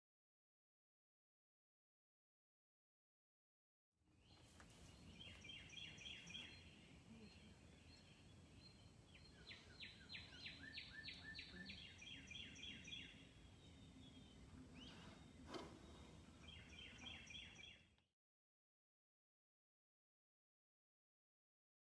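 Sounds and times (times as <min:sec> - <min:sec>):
low background noise: 0:04.1 - 0:18.0
songbird chirping: 0:04.1 - 0:18.1.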